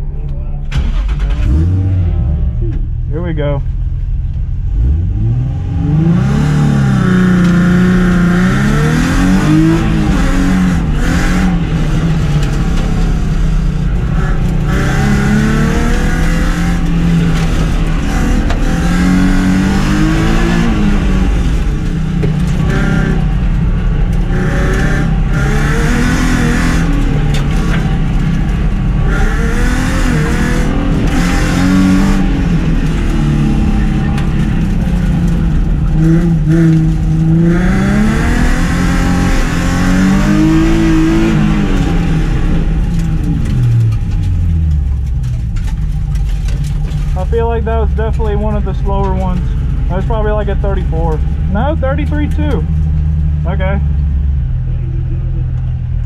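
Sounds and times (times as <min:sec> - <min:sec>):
car engine revving hard: 0:00.7 - 0:02.6, 0:04.7 - 0:44.1.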